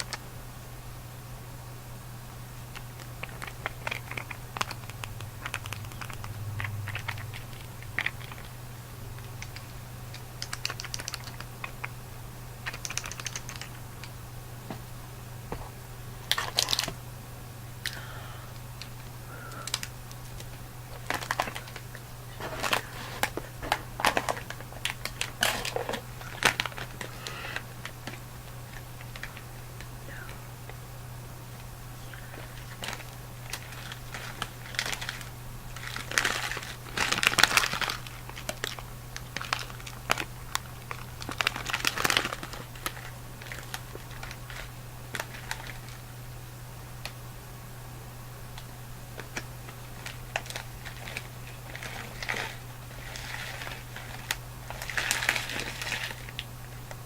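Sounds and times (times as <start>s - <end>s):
steady low hum: 0.0s - 57.0s
candy chewing crunches: 2.7s - 12.0s, 12.6s - 14.2s, 16.2s - 17.0s, 17.8s - 30.8s, 31.6s - 46.0s, 48.6s - 57.0s
wrapper crinkling: 2.8s - 8.6s, 9.2s - 11.9s, 12.6s - 13.8s, 16.2s - 17.0s, 18.8s - 29.9s, 32.1s - 46.0s, 49.2s - 57.0s.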